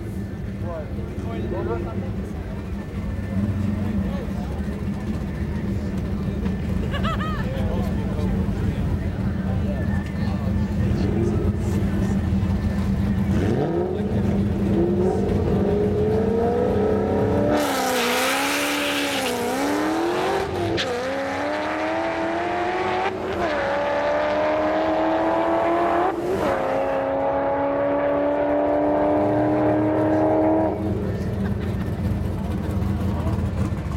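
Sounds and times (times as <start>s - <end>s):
car engine revving and accelerating: 10.7s - 33.9s.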